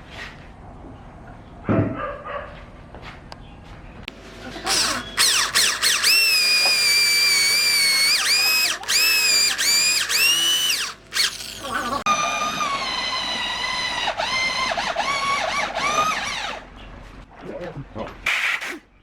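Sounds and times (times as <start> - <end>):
electric drill whining: 4.7 - 16.6.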